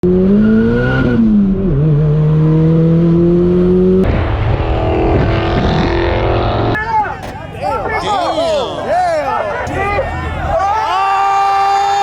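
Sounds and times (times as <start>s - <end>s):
car engine accelerating hard: 0.0s - 6.8s.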